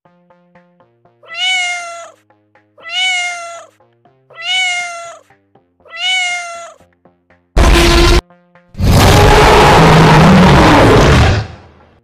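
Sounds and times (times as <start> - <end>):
soft background music: 0.1 - 7.6
cat meowing: 1.2 - 2.2, 2.8 - 6.9
loud rough sound: 7.6 - 8.2, 8.8 - 11.8.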